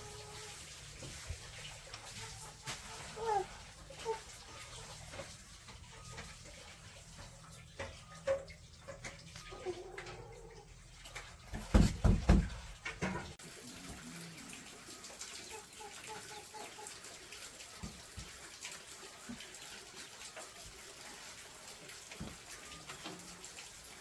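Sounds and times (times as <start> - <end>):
water running and splashing: 0.0 - 24.0.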